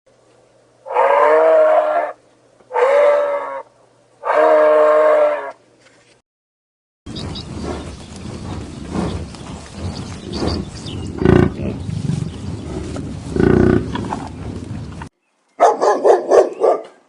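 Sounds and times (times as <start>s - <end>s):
outdoor background noise: 0.1s - 6.2s, 7.1s - 17.0s
dog yapping: 15.6s - 17.0s.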